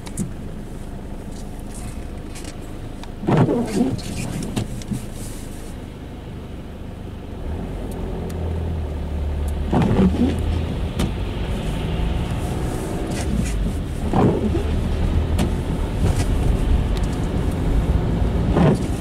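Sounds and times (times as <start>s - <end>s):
car engine accelerating: 7.3s - 19.0s.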